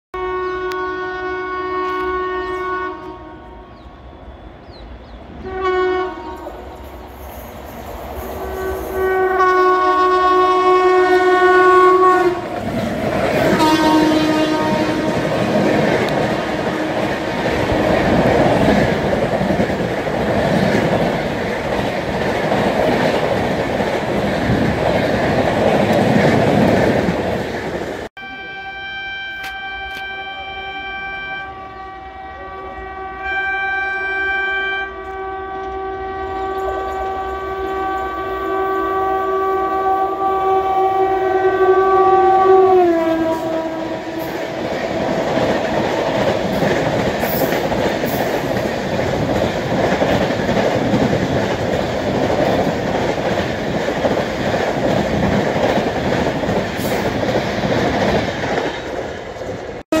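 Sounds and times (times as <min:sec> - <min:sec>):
train horn blasts: 0:00.1 - 0:04.4, 0:05.4 - 0:06.8, 0:08.4 - 0:12.7, 0:13.3 - 0:17.4, 0:28.2 - 0:44.7
train rushing past: 0:02.0 - 0:33.3, 0:35.3 - 1:00.0.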